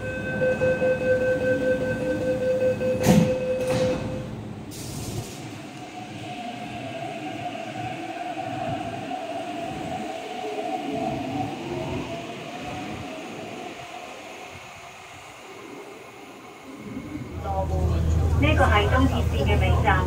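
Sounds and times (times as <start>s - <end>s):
train door warning tone: 0.0s - 4.4s
train doors clunking shut: 2.9s - 5.5s.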